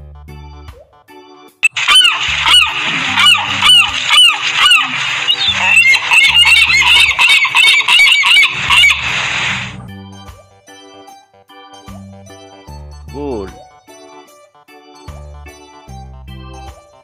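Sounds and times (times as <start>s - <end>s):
gulls squawking: 1.6s - 9.8s
soft background music: 9.8s - 17.0s.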